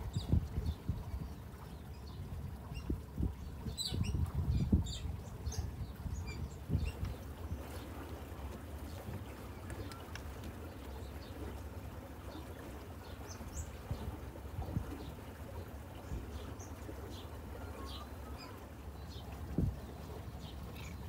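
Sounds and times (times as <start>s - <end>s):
birds chirping: 14.9s - 21.0s.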